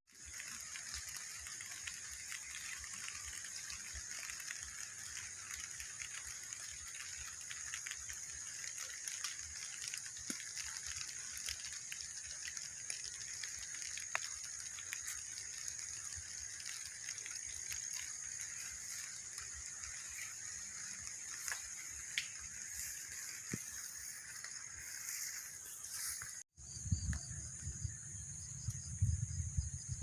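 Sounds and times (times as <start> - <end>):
high-pitched hiss: 0.1 - 30.0
faint ticks: 0.2 - 25.5.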